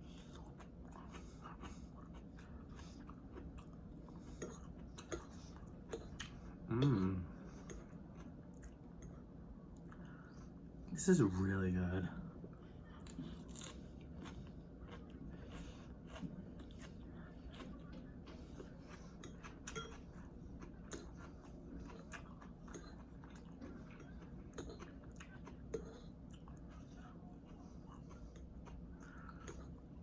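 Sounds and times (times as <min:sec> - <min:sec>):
chewing noodles: 0:00.0 - 0:10.5, 0:12.5 - 0:30.0.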